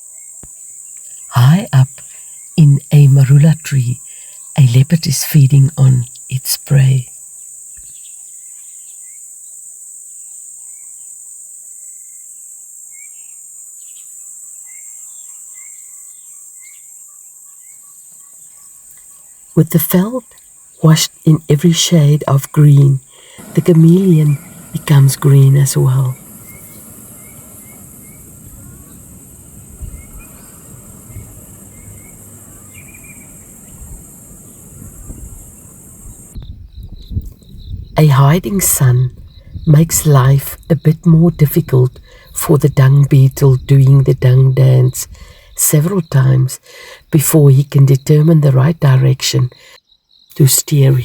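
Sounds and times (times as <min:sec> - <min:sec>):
high-pitched insect chorus: 0:00.0 - 0:48.3, 0:49.4 - 0:51.0
high-pitched drone: 0:23.4 - 0:36.4
low rumble: 0:23.4 - 0:36.6.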